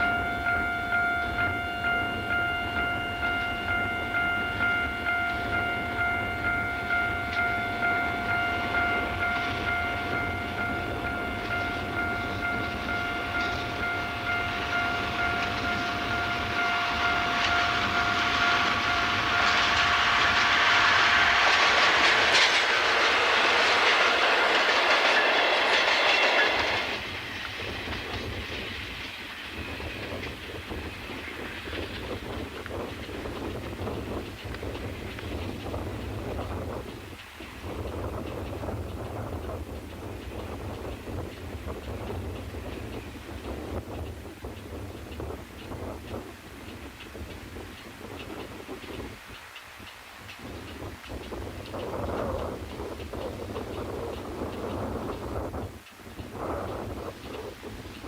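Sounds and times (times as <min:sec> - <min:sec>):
level crossing bell ringing: 0:00.0 - 0:19.5
train passing with wheel clatter: 0:00.0 - 0:58.0.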